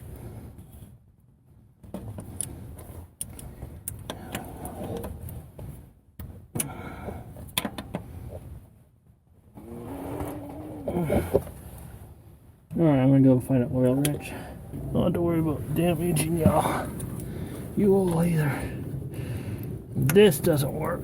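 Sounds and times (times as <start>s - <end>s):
clicks knocks and scraping under van: 1.8s - 8.5s, 15.6s - 21.0s
person straining vocal sound: 9.6s - 11.4s.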